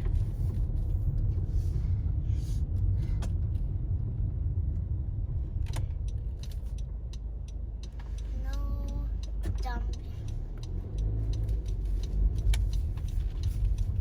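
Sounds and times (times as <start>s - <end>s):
low rumble of street noise: 0.0s - 14.0s
faint clicks: 5.7s - 14.0s.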